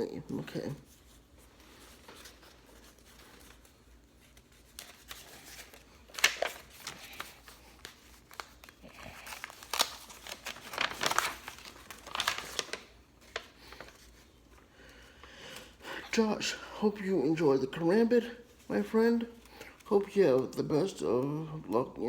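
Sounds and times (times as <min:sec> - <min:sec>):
packaging crinkling and rustling: 0:00.3 - 0:14.7.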